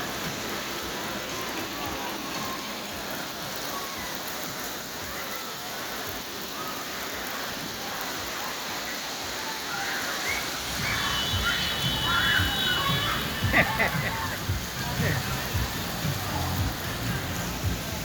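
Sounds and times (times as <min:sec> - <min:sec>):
heavy rain on street: 0:00.0 - 0:18.0.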